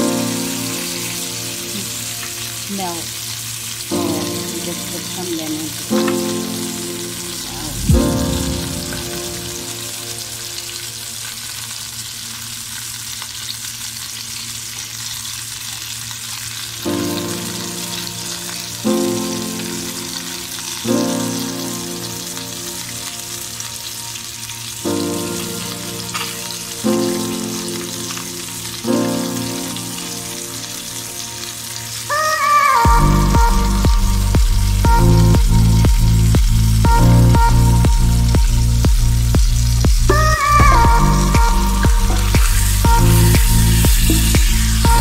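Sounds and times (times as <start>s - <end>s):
fish sizzling in a pan: 0.0s - 45.0s
soft music chords: 3.9s - 11.0s, 16.9s - 45.0s.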